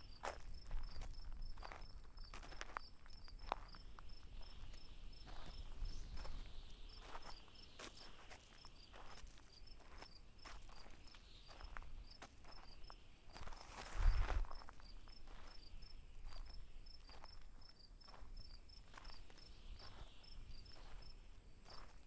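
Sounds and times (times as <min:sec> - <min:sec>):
crickets chirping: 0:00.0 - 0:22.0
footsteps on gravel: 0:00.0 - 0:22.0
high insect trill: 0:00.0 - 0:22.0.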